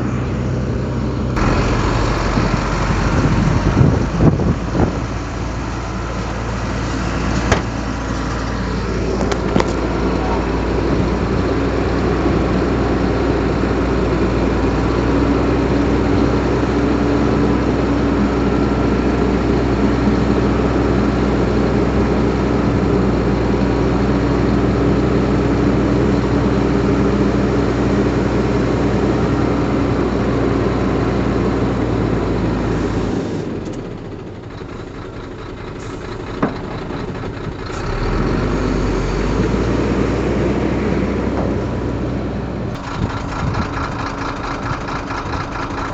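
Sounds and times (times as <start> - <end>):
heavy diesel engine running: 0.0 - 45.9
sharp knock: 7.5 - 7.8.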